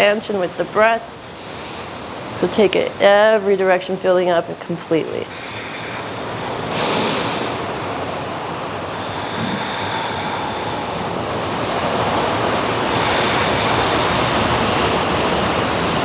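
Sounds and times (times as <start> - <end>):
ocean surf on beach: 5.0 - 16.0.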